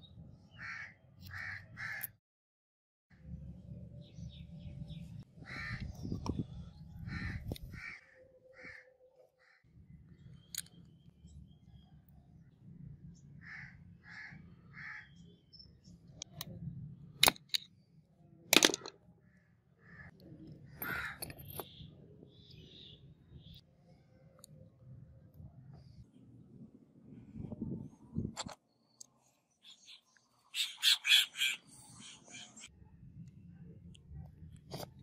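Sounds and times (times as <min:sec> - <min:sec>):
metal parts clicking: 0:17.2 - 0:17.7, 0:18.5 - 0:18.9, 0:20.8 - 0:21.7
bird calling: 0:29.6 - 0:32.7.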